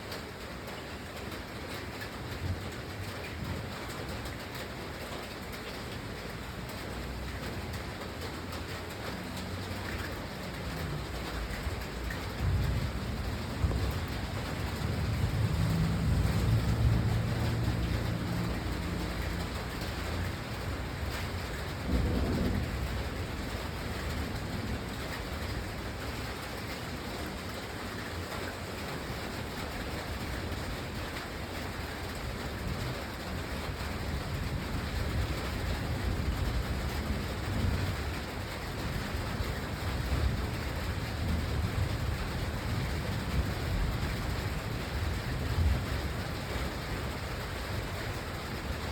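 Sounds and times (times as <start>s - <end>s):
steady rain: 0.0s - 48.9s
thunder rumbling: 10.2s - 26.2s.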